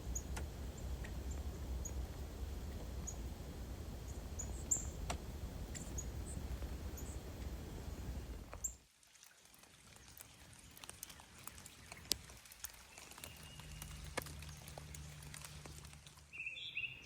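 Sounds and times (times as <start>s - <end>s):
low steady rush: 0.0s - 8.6s
scattered sharp ticks: 0.1s - 2.2s.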